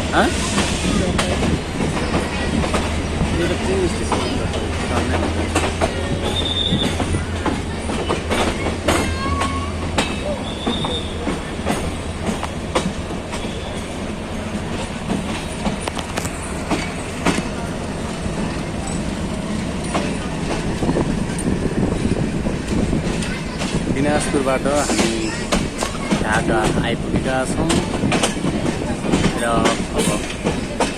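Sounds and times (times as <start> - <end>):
train rumbling on rails: 0.0 - 30.9
wheels clanking over rail joints: 0.0 - 30.9
high-pitched wheel squeals: 6.2 - 7.0.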